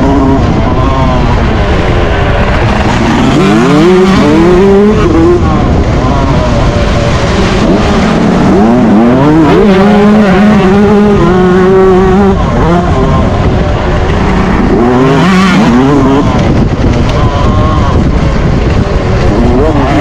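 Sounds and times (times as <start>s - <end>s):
motocross engine revving: 0.0s - 20.0s.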